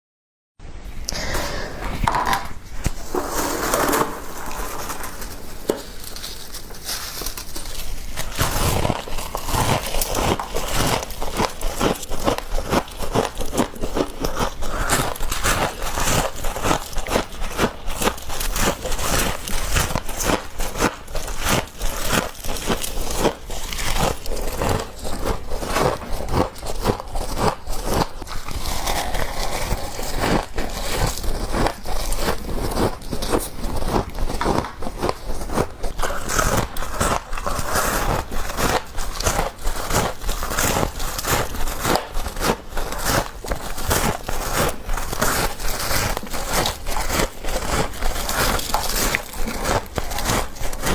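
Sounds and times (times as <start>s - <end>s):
frost crunching as scooped: 1.1s - 50.9s.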